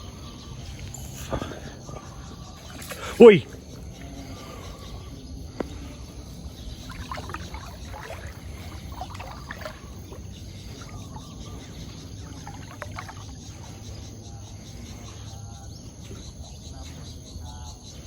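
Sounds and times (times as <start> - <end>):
water splashing and sloshing: 0.0 - 14.1.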